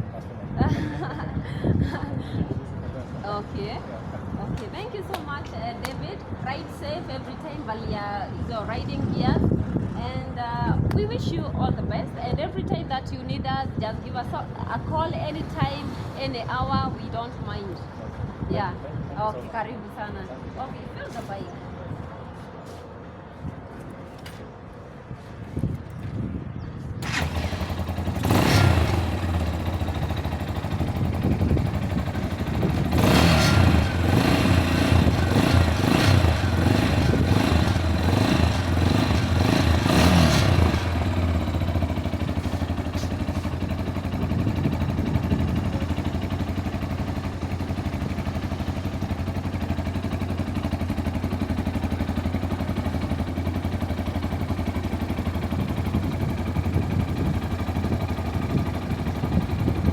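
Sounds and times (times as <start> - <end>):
motorcycle engine revving and idling: 27.0 - 59.9.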